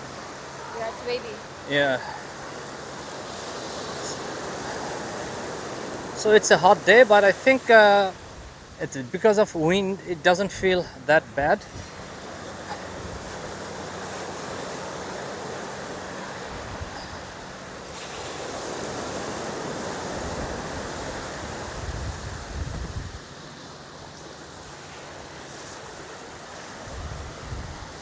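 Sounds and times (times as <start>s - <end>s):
sea surf on beach: 0.0s - 28.0s
wind on microphone: 10.4s - 23.3s, 25.9s - 28.0s.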